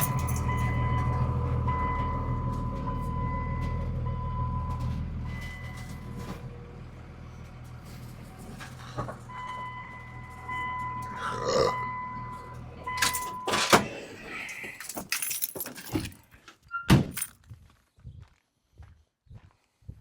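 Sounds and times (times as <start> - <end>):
jingling clatter: 0.0 - 0.8, 14.4 - 16.4
steady high warning tone: 0.0 - 6.2, 9.3 - 13.9
truck engine idling: 0.0 - 15.1.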